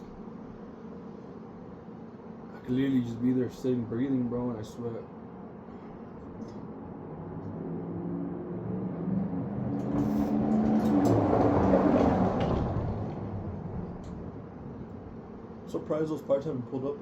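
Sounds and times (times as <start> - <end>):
vehicle passing by: 6.5 - 15.2.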